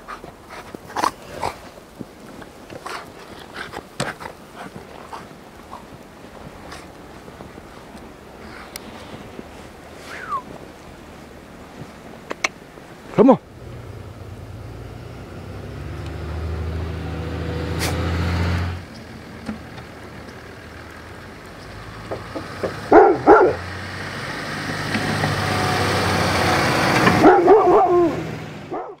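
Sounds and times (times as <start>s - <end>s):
vehicles passing: 0.0s - 29.0s
dog barking: 22.8s - 23.7s, 27.2s - 29.0s.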